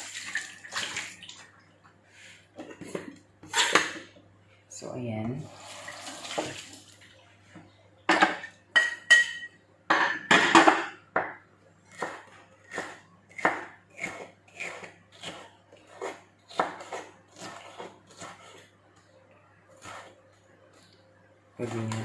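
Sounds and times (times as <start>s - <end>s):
kitchen utensils and dishes clattering: 2.6s - 4.1s, 8.1s - 11.0s
knife chopping on cutting board: 11.9s - 18.6s.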